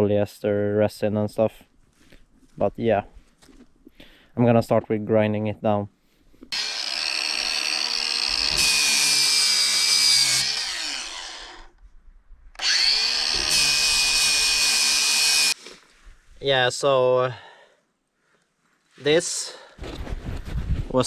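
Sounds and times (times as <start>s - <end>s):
power grinder grinding fiberglass: 6.5s - 11.8s, 12.6s - 15.6s.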